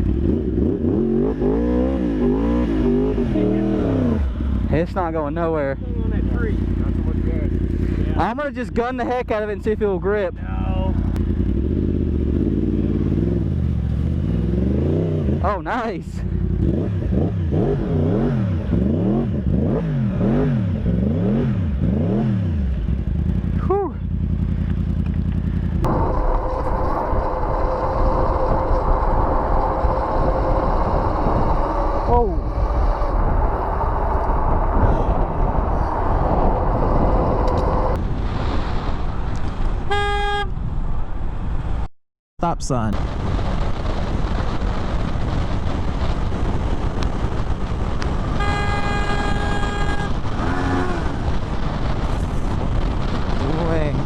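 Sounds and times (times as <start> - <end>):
motorcycle engine running: 0.0 - 38.0, 43.0 - 54.0
vehicle noise: 0.0 - 54.0
wind and road noise: 0.0 - 54.0
vehicle horn blast: 39.9 - 40.6, 48.3 - 51.0.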